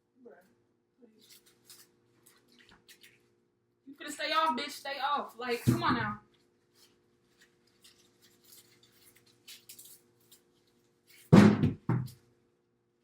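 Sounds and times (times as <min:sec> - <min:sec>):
scraping and rubbing of fridge parts: 0:05.4 - 0:12.2
loud thuds: 0:05.7 - 0:06.2, 0:11.3 - 0:12.1.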